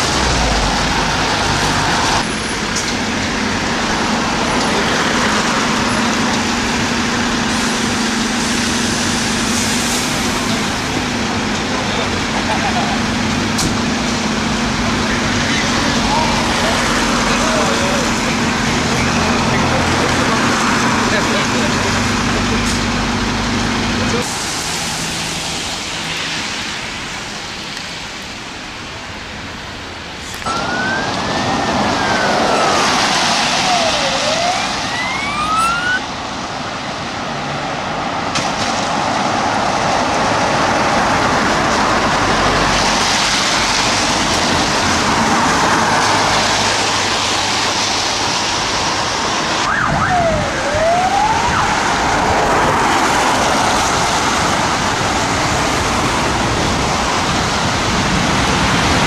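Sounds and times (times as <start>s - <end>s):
loud steady rushing noise: 0.0s - 59.0s
emergency vehicle siren wailing: 30.4s - 36.9s, 39.5s - 59.0s.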